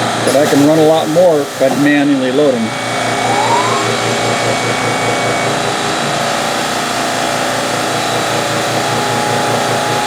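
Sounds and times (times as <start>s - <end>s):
air compressor running: 0.0s - 10.0s
cnc mill running: 0.0s - 10.0s
low pulsing: 2.7s - 6.2s.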